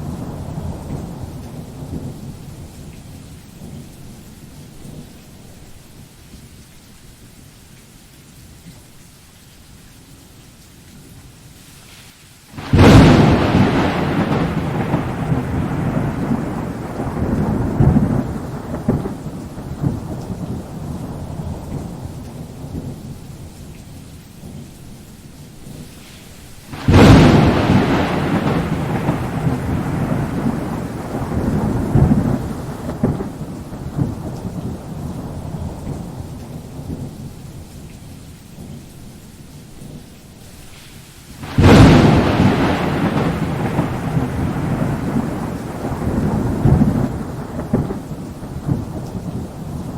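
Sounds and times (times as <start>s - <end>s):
thunder claps and rumble: 0.0s - 5.6s, 12.6s - 24.7s, 26.7s - 38.9s, 41.4s - 49.9s
steady rain hissing: 0.0s - 49.9s.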